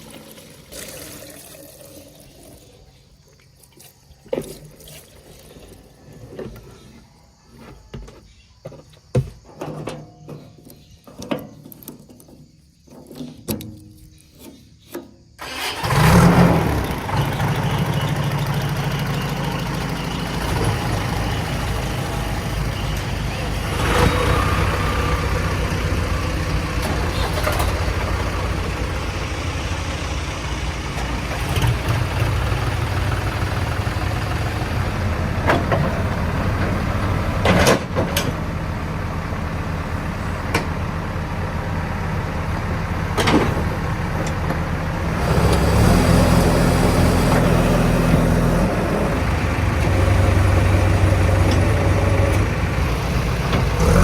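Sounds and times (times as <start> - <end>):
diesel engine running and revving: 15.4 - 54.0.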